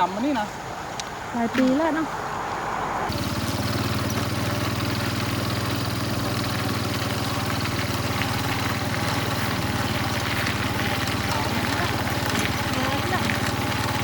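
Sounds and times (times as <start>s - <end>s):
small engine running: 3.1s - 14.0s.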